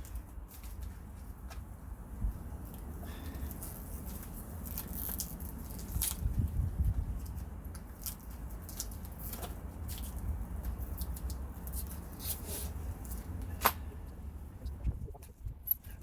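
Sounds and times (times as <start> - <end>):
low steady rumble: 0.6 - 16.0.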